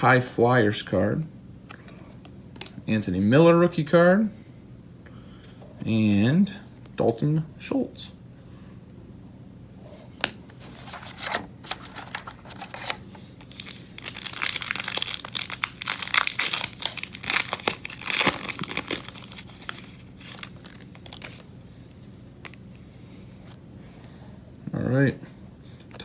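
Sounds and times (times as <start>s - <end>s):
plastic foil wrapper crinkling: 10.6s - 21.5s.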